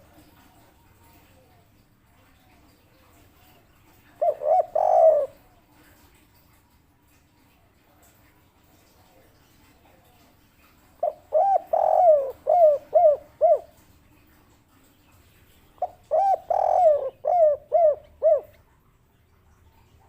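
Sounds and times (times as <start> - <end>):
dove cooing: 2.3 - 6.1, 11.0 - 13.8, 15.8 - 18.8.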